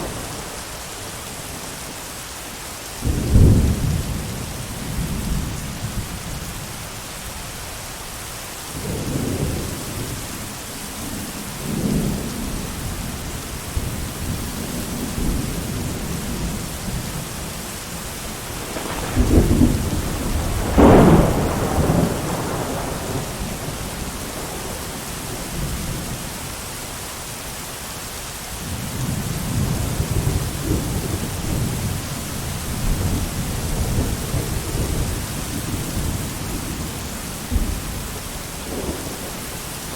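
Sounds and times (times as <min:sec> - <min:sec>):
rolling thunder: 0:00.0 - 0:01.2, 0:03.0 - 0:06.6, 0:11.2 - 0:26.2, 0:28.6 - 0:39.9
heavy rain: 0:00.0 - 0:39.9.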